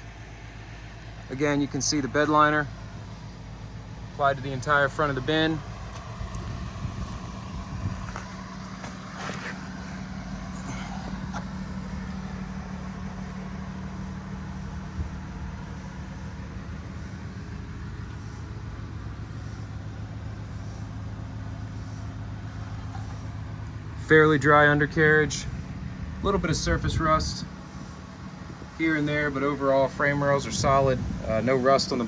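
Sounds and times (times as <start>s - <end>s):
diesel engine idling: 0.0s - 32.0s.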